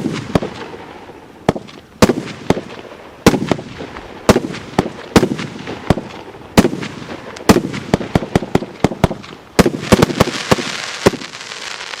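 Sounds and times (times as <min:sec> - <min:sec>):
crackling firework stars: 0:00.0 - 0:12.0
firework launch bangs: 0:03.3 - 0:12.0.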